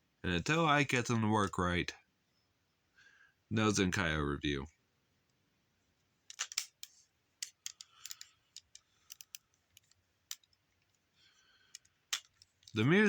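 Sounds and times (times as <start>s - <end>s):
plastic toy clicks: 6.3s - 10.5s.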